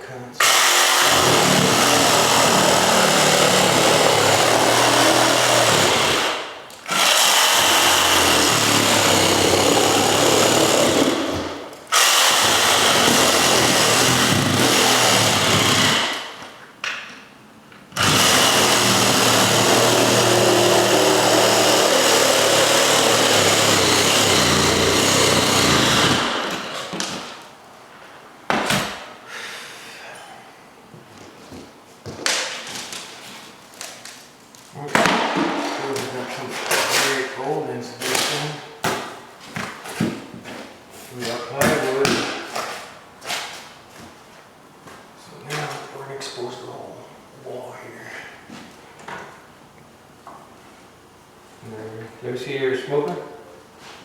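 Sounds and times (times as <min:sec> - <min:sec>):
power tool cutting into wall: 0:00.4 - 0:16.4, 0:17.9 - 0:27.4.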